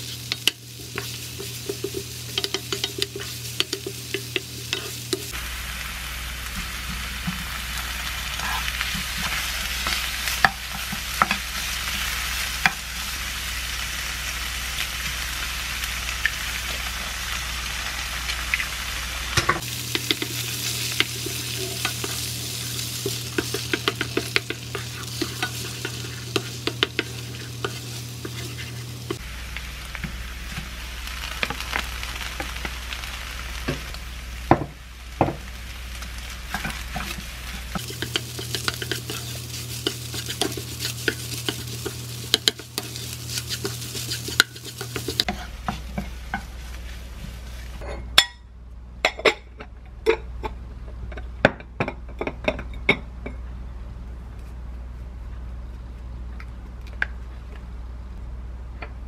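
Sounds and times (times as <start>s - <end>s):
spatula scraping and tapping pan: 0.0s - 5.4s, 8.4s - 12.0s, 19.9s - 29.2s, 36.5s - 46.6s
fried rice sizzling in pan: 0.0s - 47.8s.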